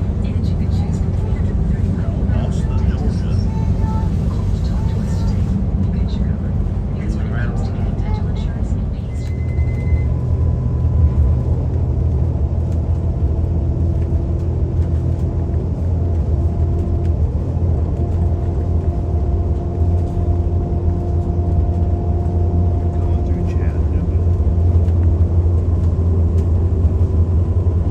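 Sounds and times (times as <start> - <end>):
vehicle engine and road noise: 0.0 - 27.9.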